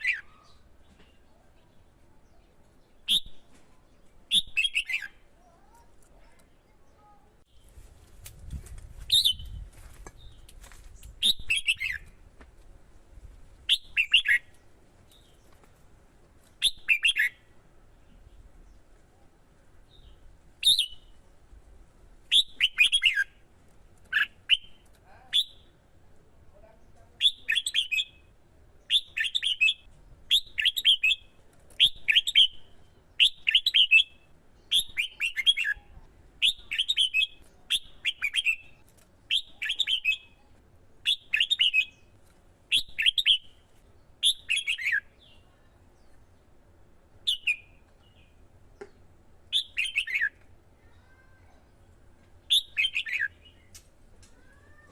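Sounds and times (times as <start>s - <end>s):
bulbul singing: 4.3s - 5.8s, 13.7s - 15.4s, 16.6s - 17.5s, 27.2s - 42.1s, 44.2s - 46.3s, 47.2s - 50.4s, 52.5s - 53.8s.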